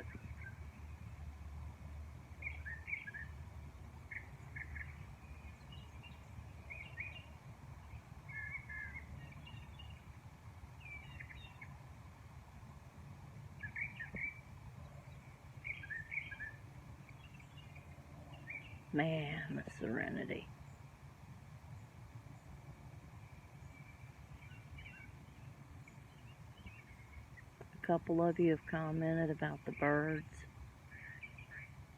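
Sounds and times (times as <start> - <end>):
low background rumble: 0.0 - 31.9
songbirds chirping: 0.0 - 31.9.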